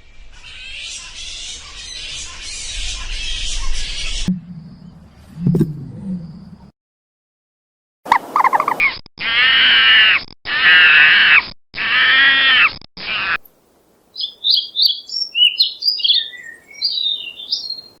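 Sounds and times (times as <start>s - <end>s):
high bird chirps: 0.4s - 6.7s, 14.1s - 18.0s.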